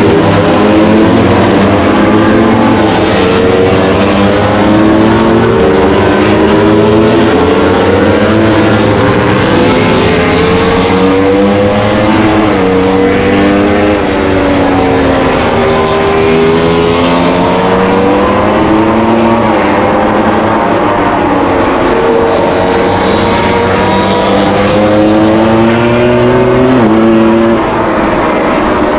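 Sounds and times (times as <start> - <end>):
racing motorcycle engines: 0.0 - 28.9.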